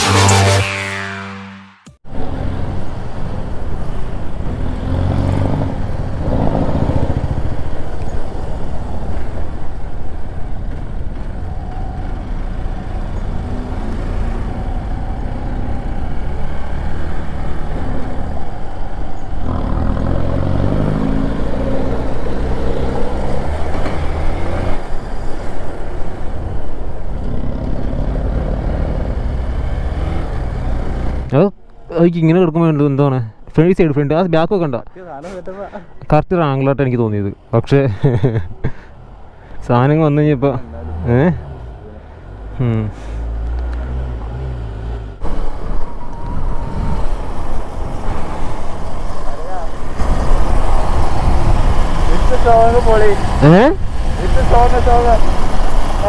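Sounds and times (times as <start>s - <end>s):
steady rushing noise: 45.2s - 56.0s.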